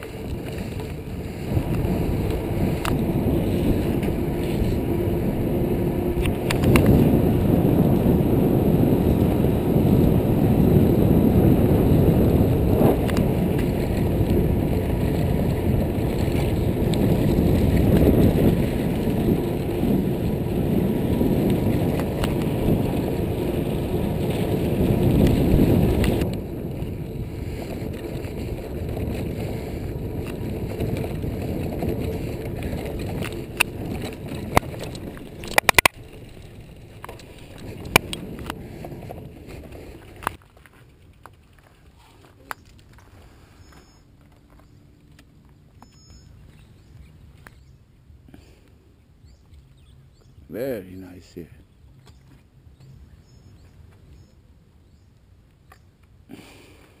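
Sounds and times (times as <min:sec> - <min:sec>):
wind rushing over microphone: 0:00.0 - 0:40.4
mountain bike tyre and frame noise: 0:00.0 - 0:57.0.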